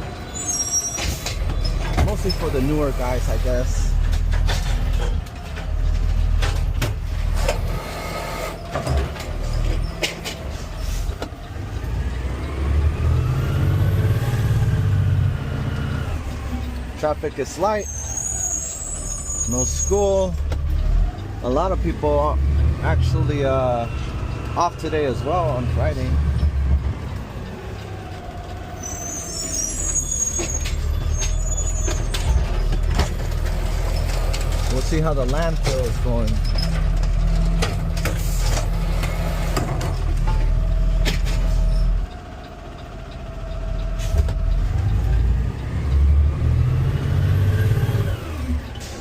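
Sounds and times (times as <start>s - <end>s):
brief high squeal: 0.3s - 1.3s, 17.8s - 20.0s, 28.8s - 32.4s
garbage truck engine revving: 1.1s - 49.0s
sharp clicks and knocks: 8.6s - 12.6s, 30.3s - 46.2s.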